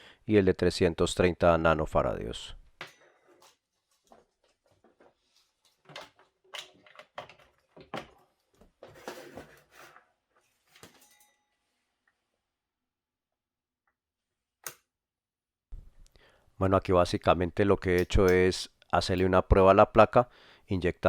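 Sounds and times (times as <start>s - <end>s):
objects clicking and knocking: 2.8s - 10.1s.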